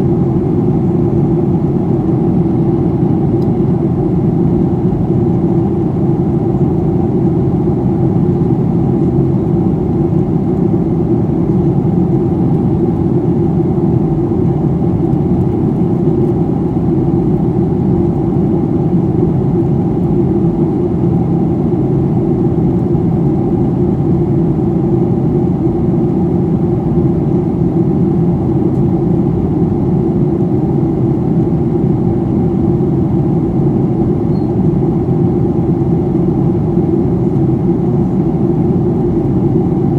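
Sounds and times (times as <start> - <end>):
jet engine drone: 0.0 - 39.9.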